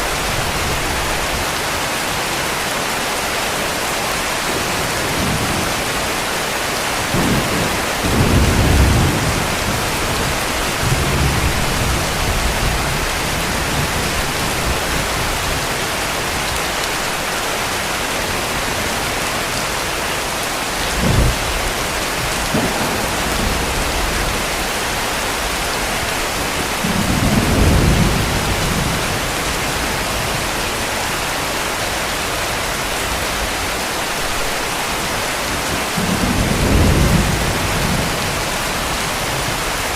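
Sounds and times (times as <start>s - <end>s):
heavy rain hiss: 0.0s - 39.9s
thunder rumbling: 7.1s - 16.5s, 20.9s - 30.5s, 35.6s - 39.8s.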